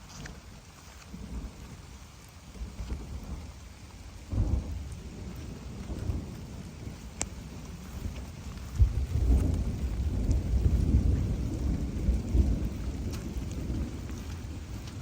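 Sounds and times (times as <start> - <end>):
rain falling: 0.0 - 15.0
sharp raindrop ticks: 0.0 - 15.0
low rumble: 4.3 - 15.0.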